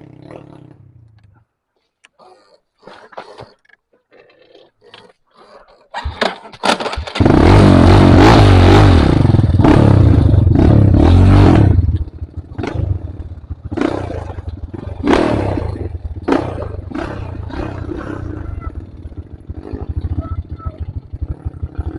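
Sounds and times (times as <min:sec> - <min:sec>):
motorcycle engine revving: 0:00.0 - 0:01.4, 0:06.0 - 0:21.9.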